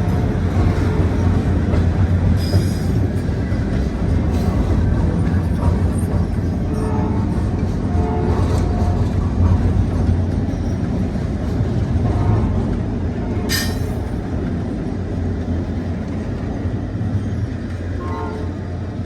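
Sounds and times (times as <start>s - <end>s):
train cars rumbling by: 0.0s - 19.0s.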